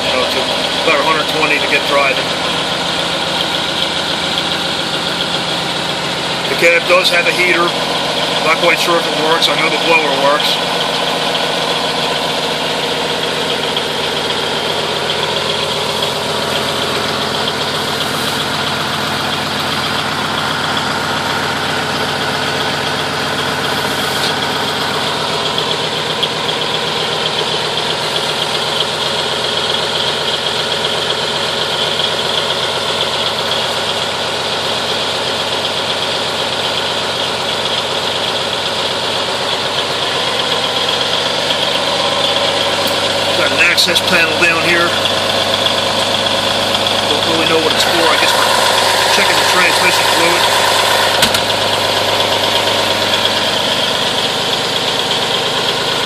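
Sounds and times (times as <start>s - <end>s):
diesel truck engine idling: 0.0s - 56.0s
air brake building pressure: 15.9s - 19.2s, 23.7s - 24.6s.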